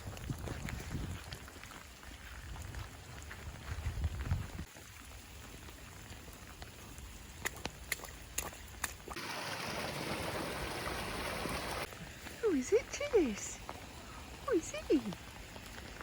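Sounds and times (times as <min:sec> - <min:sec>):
rain falling: 0:04.5 - 0:16.0.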